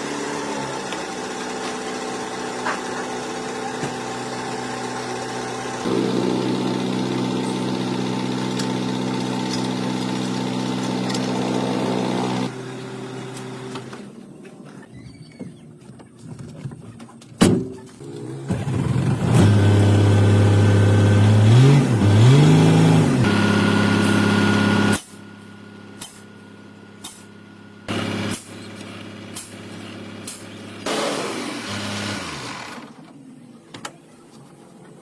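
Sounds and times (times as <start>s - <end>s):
car engine revving: 18.0s - 25.0s.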